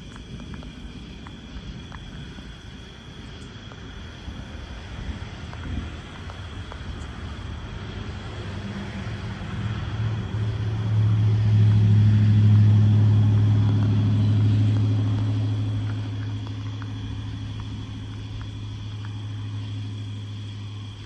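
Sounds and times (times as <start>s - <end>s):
vehicle engine passing by: 7.3s - 21.0s.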